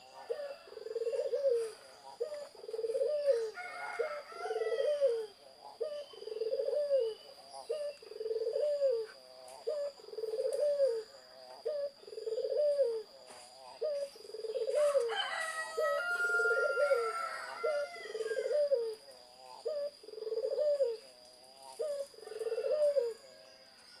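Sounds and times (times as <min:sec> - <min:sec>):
dove cooing: 0:00.0 - 0:23.7.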